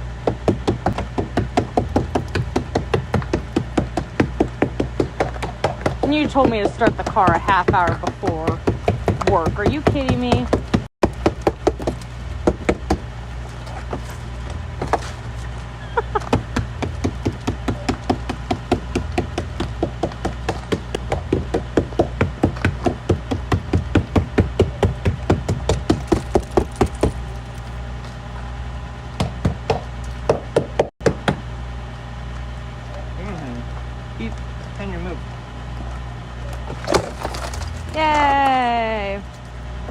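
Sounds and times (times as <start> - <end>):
steady low hum: 0.0 - 39.9
hammer knocking on car door: 0.2 - 13.1, 16.1 - 27.2, 29.2 - 31.4.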